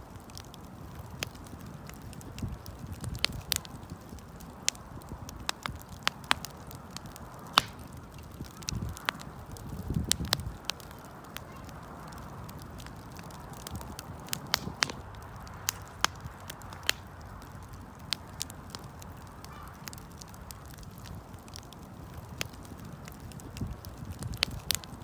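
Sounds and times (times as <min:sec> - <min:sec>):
campfire crackling and popping: 0:00.0 - 0:25.0
fire hissing: 0:00.0 - 0:25.0.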